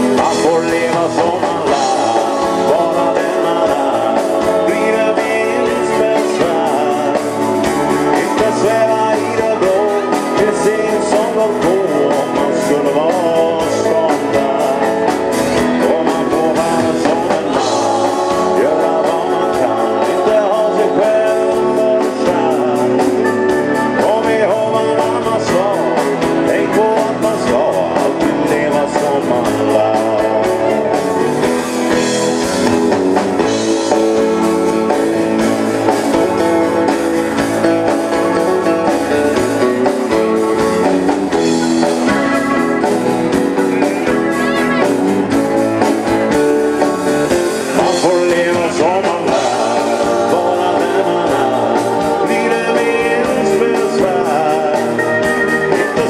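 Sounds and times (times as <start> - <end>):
guitar: 0.0 - 56.0
live band playing: 0.0 - 56.0.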